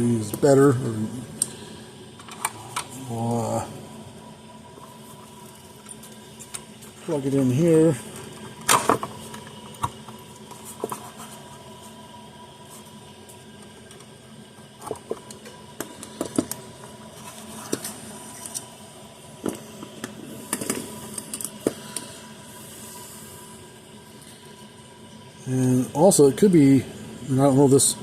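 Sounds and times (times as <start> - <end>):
clicks of wires and tools: 8.2 - 11.1, 19.5 - 22.1.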